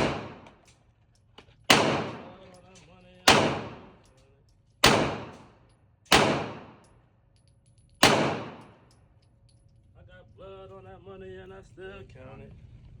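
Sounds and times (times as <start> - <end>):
gunshots with echoing tail: 0.0 - 0.6, 1.7 - 2.5, 3.2 - 4.0, 4.8 - 6.9, 8.0 - 8.8.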